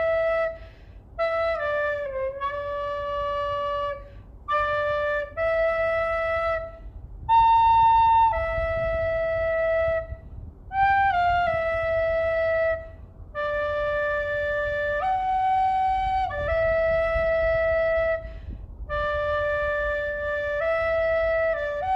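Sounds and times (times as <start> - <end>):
flute playing slow melody: 0.0 - 21.9.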